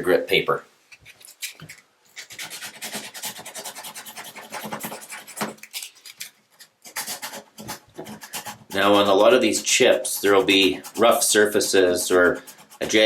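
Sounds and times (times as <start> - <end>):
sandpaper rubbing on tub surface: 6.9 - 13.0.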